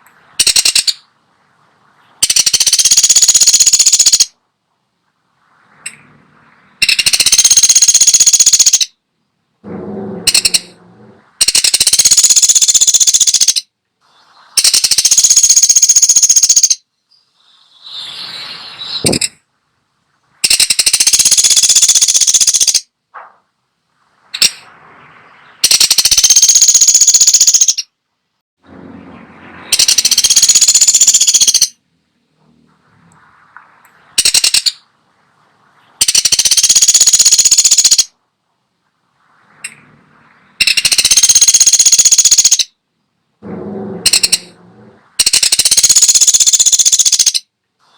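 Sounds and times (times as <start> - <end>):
woodpecker rattling trills: 0.4 - 1.1, 2.2 - 4.4, 6.8 - 9.0, 9.8 - 13.7, 14.6 - 16.8, 20.4 - 22.9, 25.3 - 27.9, 29.6 - 31.8, 34.2 - 34.9, 36.0 - 38.1, 40.6 - 42.7, 43.5 - 47.5
woodpecker single calls: 0.4 - 1.1, 2.2 - 4.4, 6.8 - 9.0, 10.3 - 10.8, 11.4 - 13.7, 14.6 - 19.4, 20.4 - 22.9, 25.6 - 27.9, 29.7 - 31.8, 34.2 - 34.9, 36.0 - 38.1, 40.6 - 42.8, 45.2 - 47.5.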